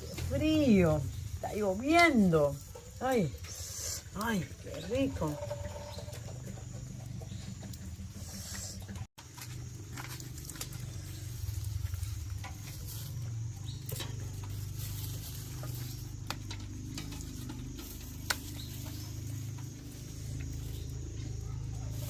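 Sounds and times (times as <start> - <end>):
campfire crackling and popping: 9.2 - 11.3.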